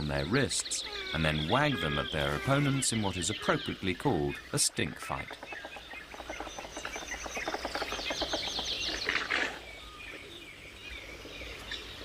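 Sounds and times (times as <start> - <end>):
rapid chattering bird call: 0.2 - 9.6.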